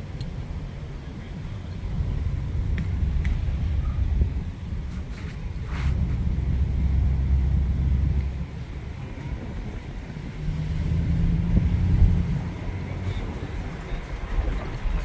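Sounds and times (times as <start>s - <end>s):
car engine rumbling: 0.0s - 15.0s
steady low hum: 0.0s - 15.0s.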